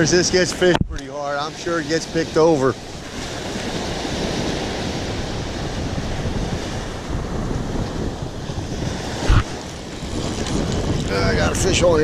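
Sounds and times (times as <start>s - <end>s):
ocean surf on beach: 0.0s - 12.0s
wind buffeting microphone: 0.0s - 12.0s
short thump: 9.2s - 9.6s.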